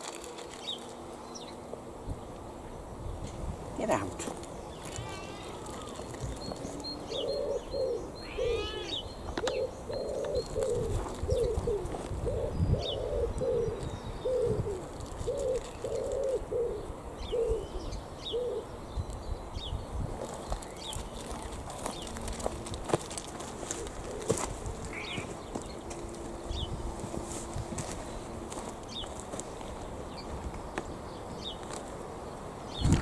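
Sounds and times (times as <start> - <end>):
small birds chirping: 0.1 - 33.0
bird calling low notes: 4.8 - 18.7, 24.0 - 25.9.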